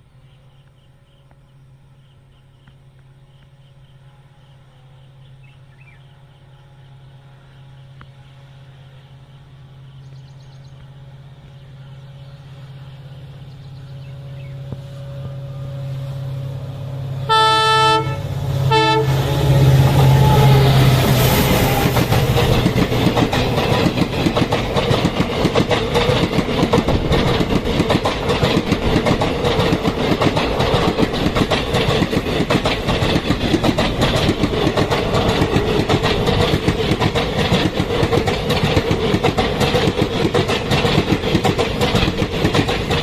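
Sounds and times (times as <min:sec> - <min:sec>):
diesel locomotive hum: 0:00.0 - 0:43.0
train wheels clattering over rails: 0:16.8 - 0:43.0.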